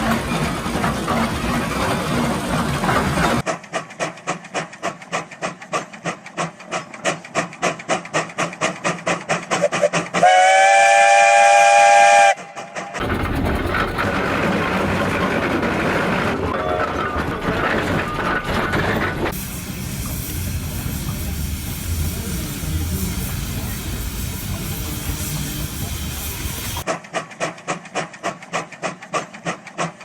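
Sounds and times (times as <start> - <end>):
steam engine chuffing: 0.0 - 30.0
steam whistle blast: 9.6 - 12.6
hiss of steam: 19.3 - 27.5.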